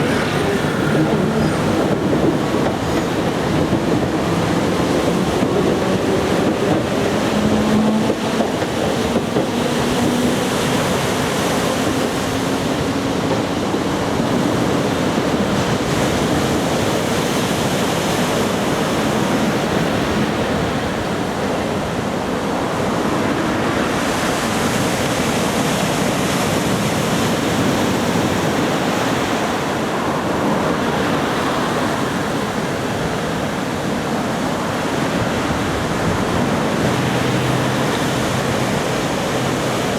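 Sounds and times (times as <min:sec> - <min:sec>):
faint humming tone from train: 0:00.0 - 0:39.9
waves breaking: 0:00.0 - 0:39.9
wind on microphone: 0:00.0 - 0:39.9.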